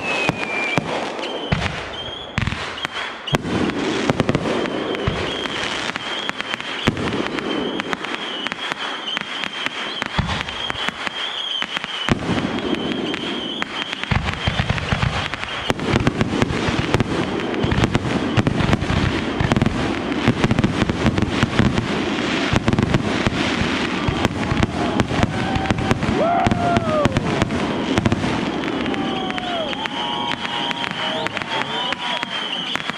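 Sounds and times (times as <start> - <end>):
rising and falling whistles: 0.0 - 3.4, 4.5 - 14.7, 26.3 - 32.9
fireworks crackling and bangs: 0.0 - 32.9
fireworks high whistle: 0.0 - 32.9
fireworks low booms: 0.0 - 32.9.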